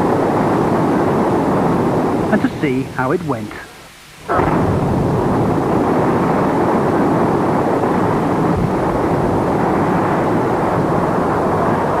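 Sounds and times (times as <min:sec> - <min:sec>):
building collapsing roar: 0:04.3 - 0:12.0.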